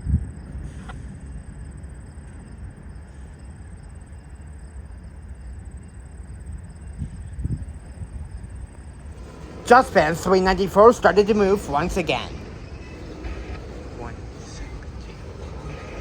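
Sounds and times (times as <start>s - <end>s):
diesel locomotives idling: 0.4s - 16.0s
wind buffeting microphone: 6.2s - 16.0s.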